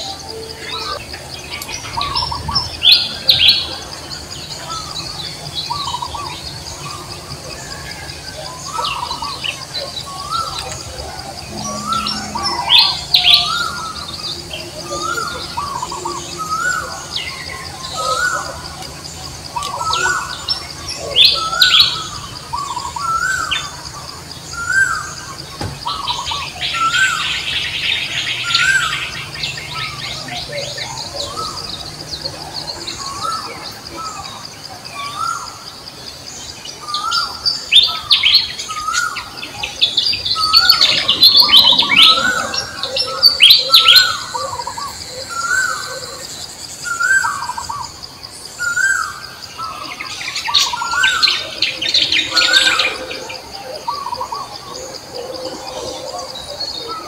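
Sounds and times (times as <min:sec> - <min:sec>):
steady high buzz: 0:00.0 - 0:22.6
birds chirping: 0:00.0 - 0:57.0
sharp bird calls: 0:00.0 - 0:57.0.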